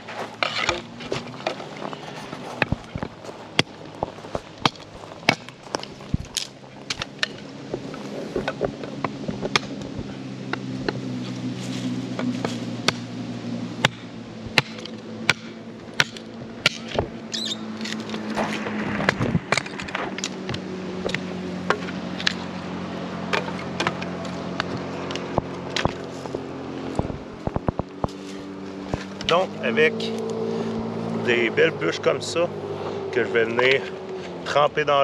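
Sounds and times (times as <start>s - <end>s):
motorboat engine drone: 0.0s - 35.0s
campfire crackling and popping: 1.5s - 11.0s.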